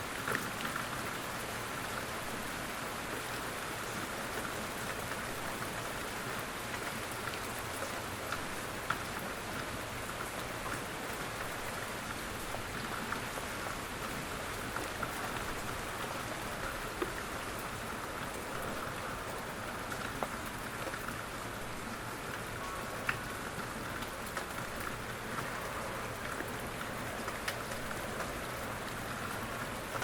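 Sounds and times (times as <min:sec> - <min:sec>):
rain hissing on a surface: 0:00.0 - 0:30.0.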